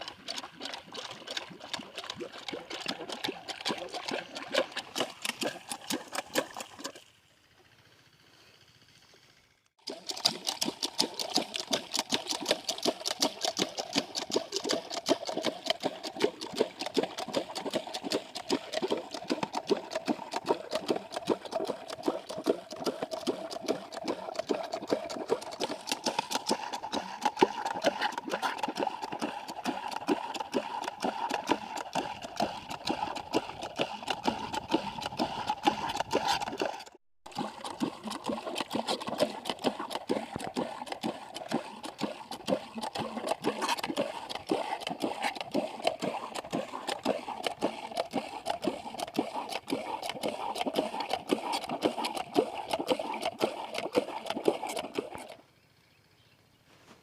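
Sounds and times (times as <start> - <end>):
small diesel engine chugging: 7.0 - 36.0.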